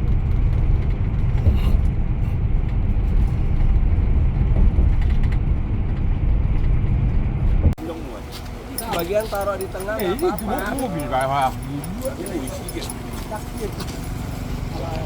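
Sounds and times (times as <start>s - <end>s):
interior creaks and rattles: 0.0s - 7.8s
bus cabin low rumble: 0.0s - 15.0s.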